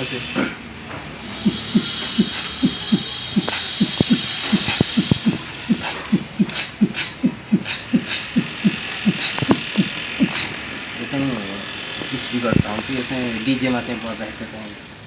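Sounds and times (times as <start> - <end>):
man beatboxing: 0.0 - 0.6, 1.2 - 11.6, 12.5 - 12.8.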